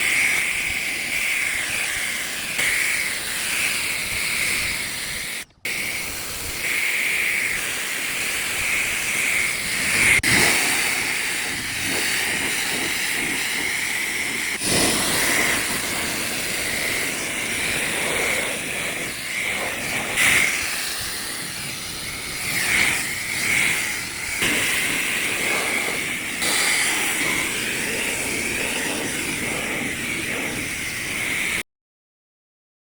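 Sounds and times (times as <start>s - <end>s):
pressure washer water jet hissing: 0.0s - 31.6s.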